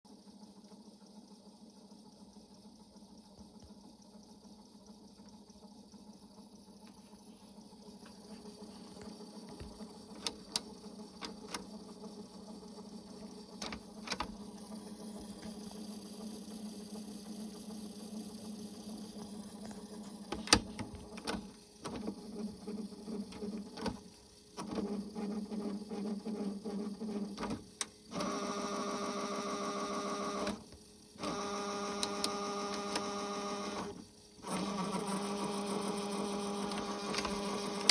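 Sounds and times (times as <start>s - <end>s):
tape transport motor hum: 6.9s - 37.9s
tape whirring: 31.2s - 37.9s.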